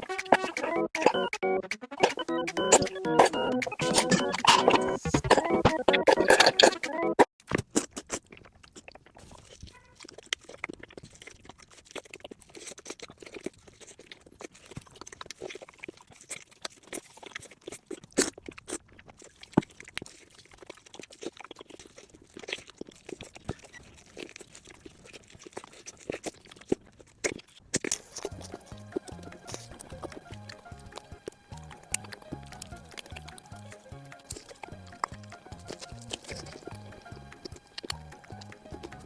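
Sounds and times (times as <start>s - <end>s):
person chewing crunchy food: 2.0s - 6.8s, 7.4s - 39.0s.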